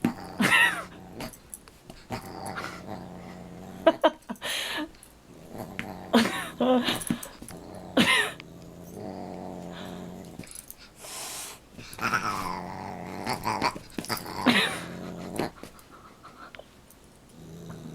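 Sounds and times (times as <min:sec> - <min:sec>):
dog growling: 0:00.0 - 0:01.4, 0:02.0 - 0:04.2, 0:05.3 - 0:10.6, 0:11.8 - 0:16.4, 0:17.3 - 0:17.9.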